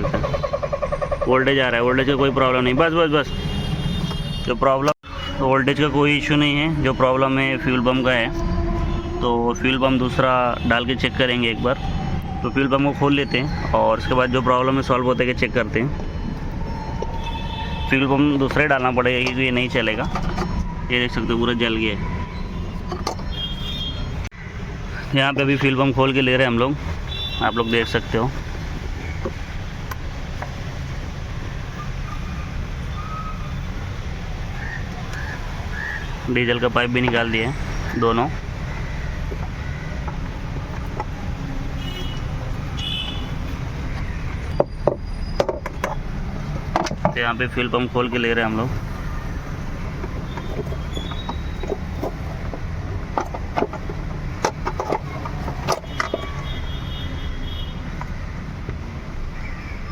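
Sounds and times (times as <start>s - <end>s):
knocks and clicks of tools: 18.4s - 20.7s, 22.8s - 23.3s, 39.3s - 41.2s, 43.9s - 47.2s, 49.9s - 56.3s
workshop background rumble: 34.9s - 56.4s.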